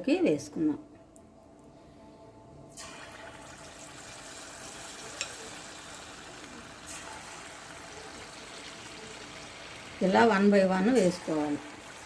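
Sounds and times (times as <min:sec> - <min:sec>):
chicken sizzling in hot oil: 0:02.8 - 0:12.0.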